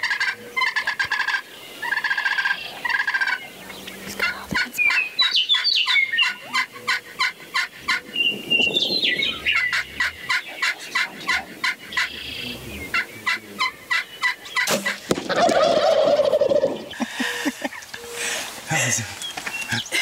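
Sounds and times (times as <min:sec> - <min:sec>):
turkeys gobbling: 0:00.0 - 0:19.0
loud commotion: 0:14.7 - 0:16.8.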